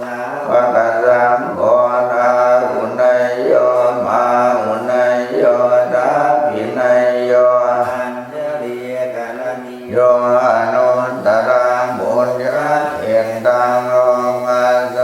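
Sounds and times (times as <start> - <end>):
voices chanting: 0.0 - 15.0.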